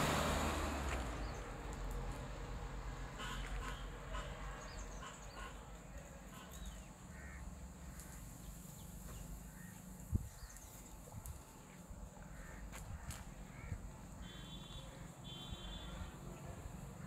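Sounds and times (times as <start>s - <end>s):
birds calling: 3.2s - 11.0s.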